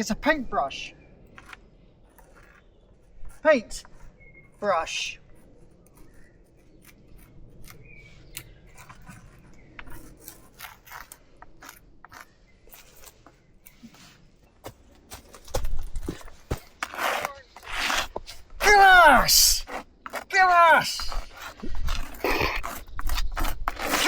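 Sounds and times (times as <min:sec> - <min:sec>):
scrapes and clicks: 0:01.3 - 0:04.2, 0:05.3 - 0:14.2, 0:20.9 - 0:24.0.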